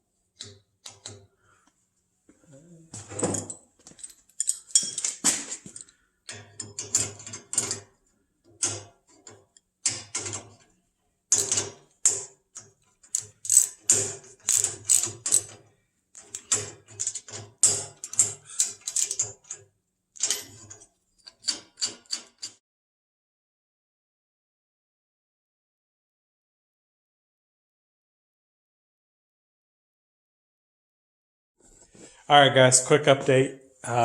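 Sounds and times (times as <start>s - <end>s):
metallic clicking and clattering: 3.1s - 10.7s, 11.3s - 15.6s, 16.2s - 22.6s.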